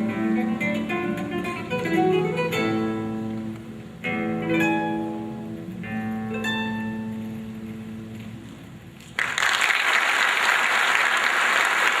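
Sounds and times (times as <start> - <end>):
acoustic guitar chords: 0.0 - 8.8
audience applause: 9.2 - 12.0.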